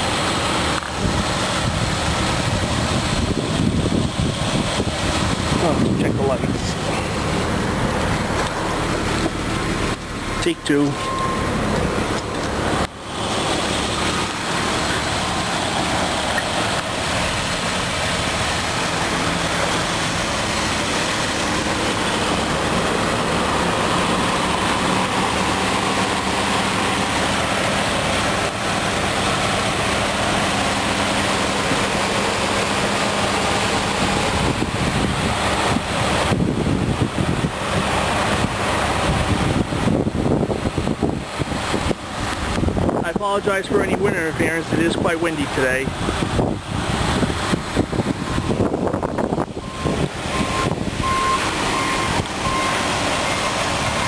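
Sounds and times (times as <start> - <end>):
car engine idling: 0.0 - 54.0
wind buffeting microphone: 1.0 - 10.0, 33.8 - 43.2, 43.8 - 52.7.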